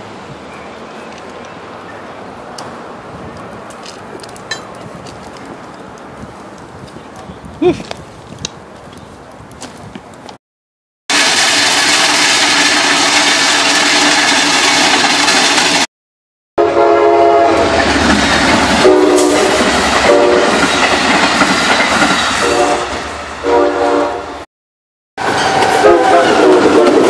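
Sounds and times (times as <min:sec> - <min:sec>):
loud rail equipment noise: 0:00.0 - 0:10.3, 0:11.1 - 0:15.9, 0:16.6 - 0:24.5, 0:25.2 - 0:27.0
passenger train rumbling: 0:00.0 - 0:10.3, 0:11.1 - 0:15.9, 0:16.6 - 0:24.5, 0:25.2 - 0:27.0
train horn blasts: 0:16.6 - 0:17.8, 0:18.8 - 0:20.6, 0:22.4 - 0:24.4, 0:25.2 - 0:27.0.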